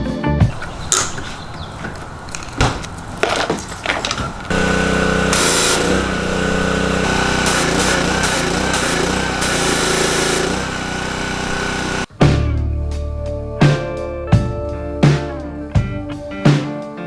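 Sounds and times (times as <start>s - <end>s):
small motor running: 0.5s - 12.1s.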